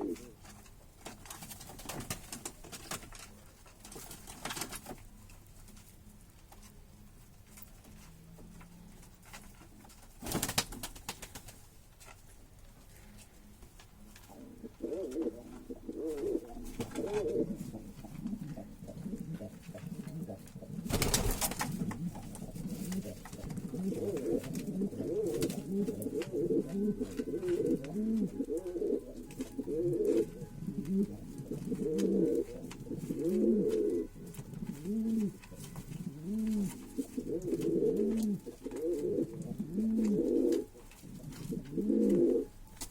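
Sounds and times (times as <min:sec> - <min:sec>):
birds cooing: 0:00.0 - 0:00.4, 0:14.3 - 0:42.5.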